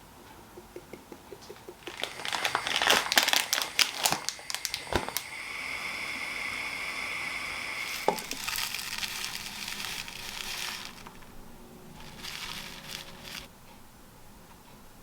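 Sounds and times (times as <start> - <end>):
crinkling and crackling: 1.4 - 5.4, 7.8 - 13.5
food sizzling in a pan: 1.8 - 11.3, 12.0 - 13.5.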